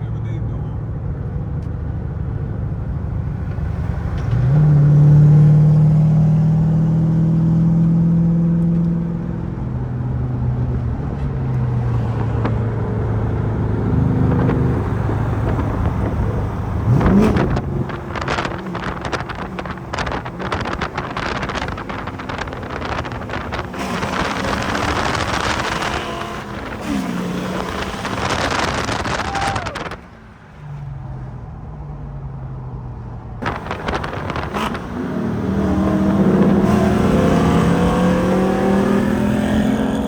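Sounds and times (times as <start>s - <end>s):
car engine running: 12.0s - 30.1s, 33.4s - 38.4s
wind buffeting microphone: 12.1s - 30.1s, 33.4s - 39.2s.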